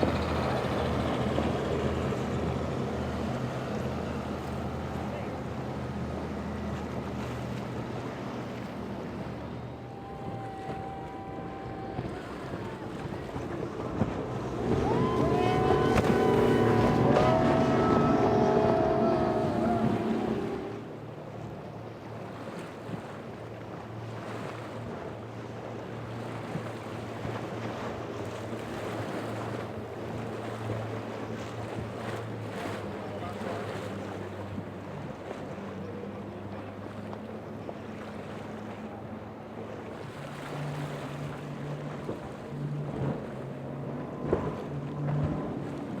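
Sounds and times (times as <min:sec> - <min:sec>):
boat engine running: 0:00.0 - 0:46.0
water noise: 0:00.0 - 0:46.0
waves washing: 0:00.0 - 0:46.0
wind buffeting microphone: 0:08.8 - 0:20.9
steady higher tone: 0:14.4 - 0:21.0.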